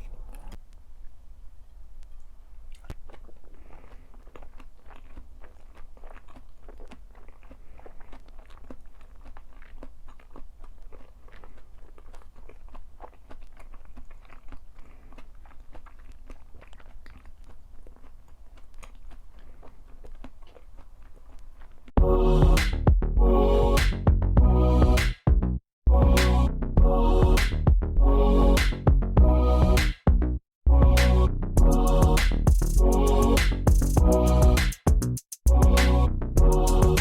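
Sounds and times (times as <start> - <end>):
chewing crunchy food: 2.1 - 22.0.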